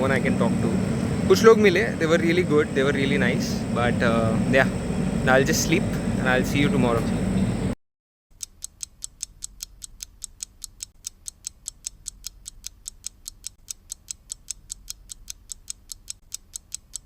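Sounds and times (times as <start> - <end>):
clock ticking rapidly: 8.3 - 17.0.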